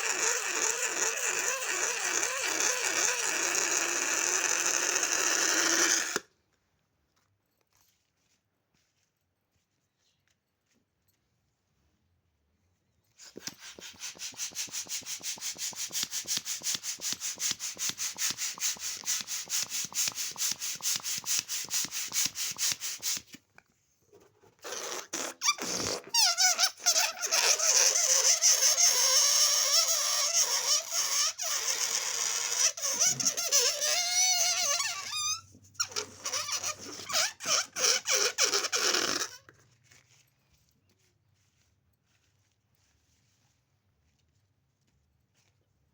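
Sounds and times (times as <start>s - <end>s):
balloon pump pulsing: 0.0s - 6.3s, 13.2s - 23.4s, 24.5s - 39.6s
rubber balloon squeaking: 0.0s - 6.3s, 24.5s - 39.6s.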